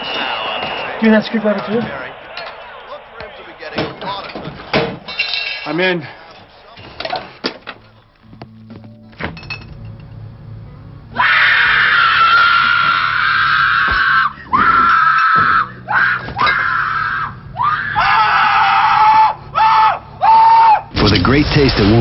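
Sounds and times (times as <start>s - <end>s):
low steady hum: 7.6s - 11.2s.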